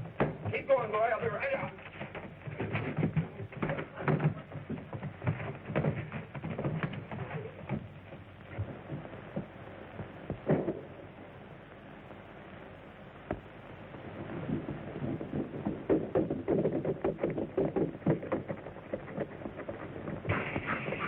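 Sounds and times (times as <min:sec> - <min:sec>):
knocks and thumps: 0:00.0 - 0:10.9, 0:14.3 - 0:21.0
steady hiss: 0:00.0 - 0:21.0.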